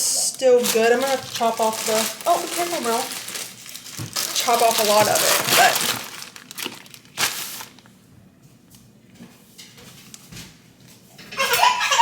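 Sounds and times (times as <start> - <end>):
baby crying: 11.4 - 12.0.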